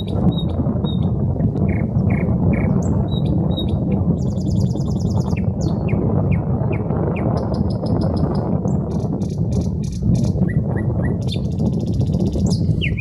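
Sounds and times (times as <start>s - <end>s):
steady low rumble: 0.0s - 13.0s
nightingale singing: 9.8s - 13.0s.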